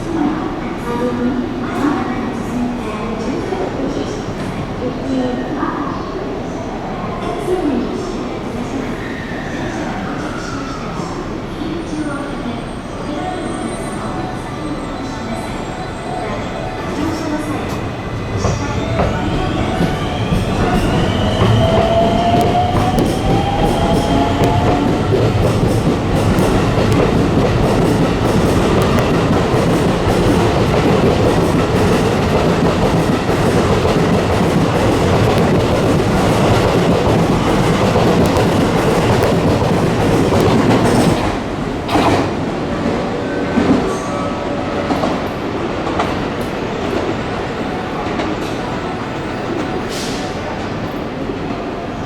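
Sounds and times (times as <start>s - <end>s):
electric train rumble: 13.6s - 42.5s.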